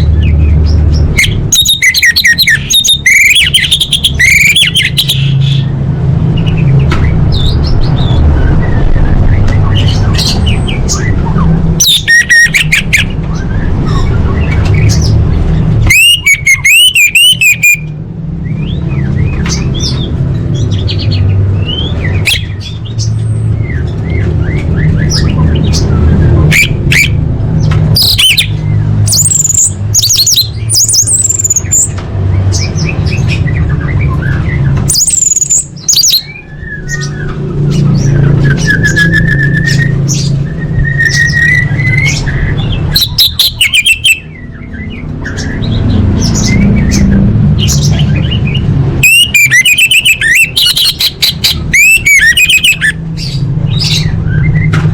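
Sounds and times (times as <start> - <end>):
bird chattering calls and squawks: 0.0 - 18.0, 18.7 - 54.7
buzzy wavering bird trill: 15.9 - 17.8.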